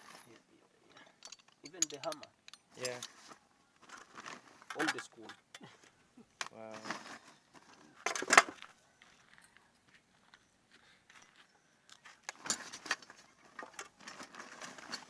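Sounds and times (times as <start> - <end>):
metal hand tools clinking: 0.0 - 5.6, 12.2 - 15.0
loud tool clatter: 1.0 - 3.2, 8.1 - 8.6, 12.3 - 15.0.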